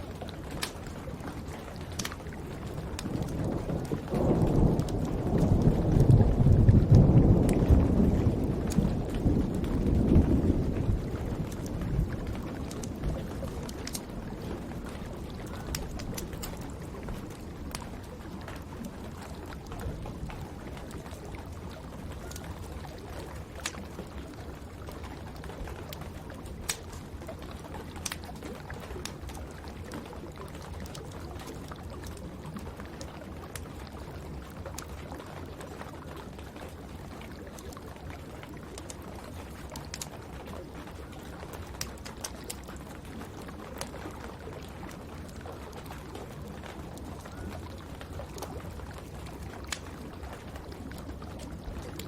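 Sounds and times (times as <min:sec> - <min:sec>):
faint fire crackles: 0:00.0 - 0:52.0
steady rain: 0:00.0 - 0:52.0
rolling thunder: 0:03.2 - 0:13.2.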